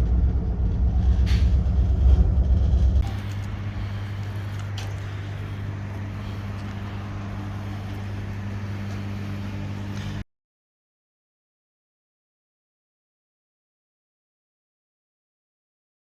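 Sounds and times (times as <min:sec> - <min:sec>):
motor hum: 0:00.0 - 0:10.2.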